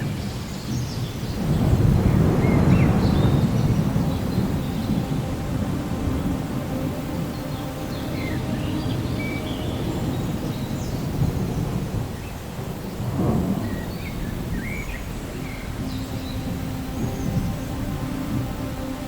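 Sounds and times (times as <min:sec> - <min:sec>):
low rolling thunder: 0:00.0 - 0:19.0
steady rain: 0:00.0 - 0:19.0.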